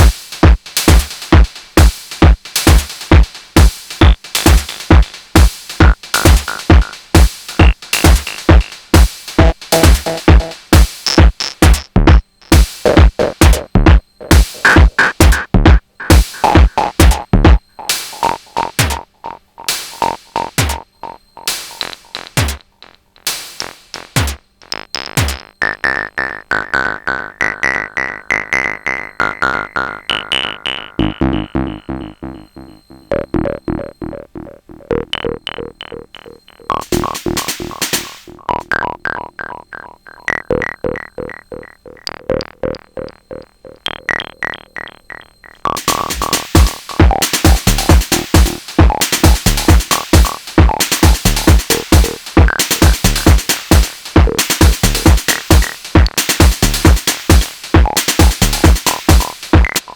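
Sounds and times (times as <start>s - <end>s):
heavy kick drum beat: 0.0s - 19.1s, 19.8s - 20.9s, 23.3s - 24.6s, 31.0s - 38.8s, 45.6s - 59.9s
pitched percussion hits: 35.7s - 39.5s, 45.6s - 59.9s.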